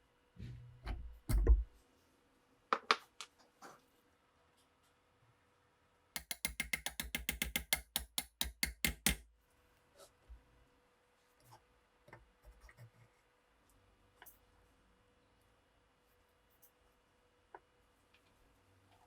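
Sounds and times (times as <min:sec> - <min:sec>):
rapid mechanical clicks: 0:06.2 - 0:09.2.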